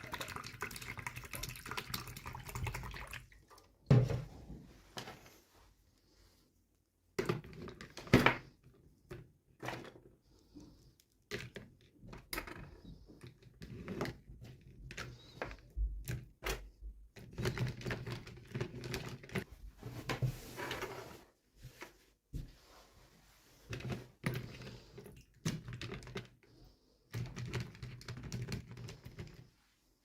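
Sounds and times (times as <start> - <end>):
plastic toys clicking and knocking: 11.2 - 19.5, 23.8 - 26.5, 27.1 - 29.4.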